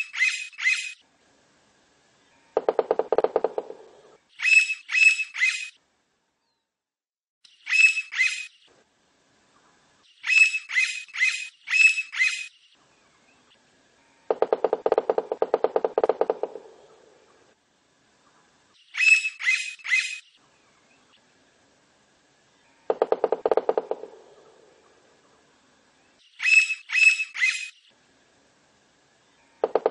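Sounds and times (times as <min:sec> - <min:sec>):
woodpecker rapid pulsed call: 0:00.0 - 0:01.0, 0:02.6 - 0:05.8, 0:07.6 - 0:08.6, 0:10.2 - 0:12.6, 0:18.8 - 0:20.4, 0:22.9 - 0:24.9, 0:26.3 - 0:27.8, 0:29.6 - 0:29.9
woodpecker nasal calls: 0:18.9 - 0:20.2, 0:22.7 - 0:25.0, 0:29.4 - 0:29.9.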